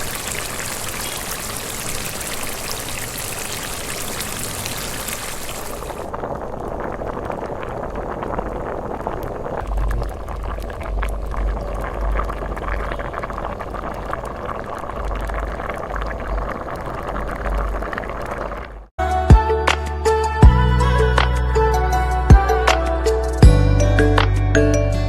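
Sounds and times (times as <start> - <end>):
food bubbling in a pot: 0.0 - 18.9.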